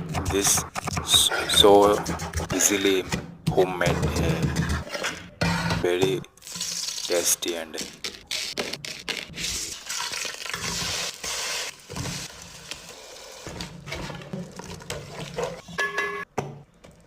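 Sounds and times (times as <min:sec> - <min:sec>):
food sizzling in a pot: 0:09.7 - 0:13.5.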